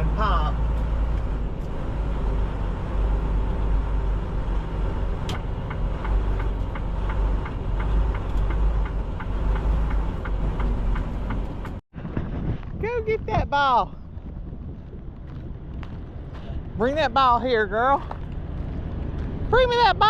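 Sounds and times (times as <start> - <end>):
truck engine drone: 0.0 - 11.8
road noise: 0.0 - 20.0.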